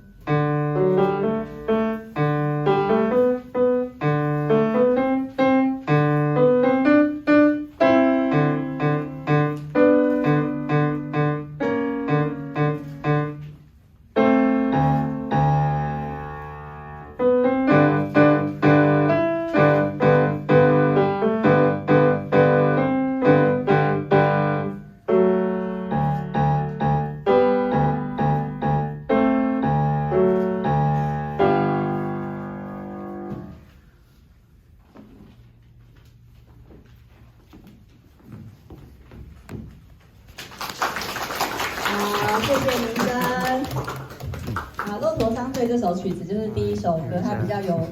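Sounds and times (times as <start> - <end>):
solo piano chords: 0.0 - 33.8.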